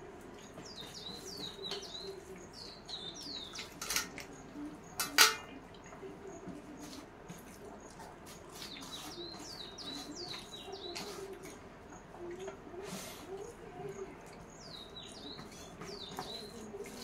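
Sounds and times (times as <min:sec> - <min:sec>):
small birds chirping: 0:00.0 - 0:17.0
steel dishware clink: 0:05.0 - 0:05.5.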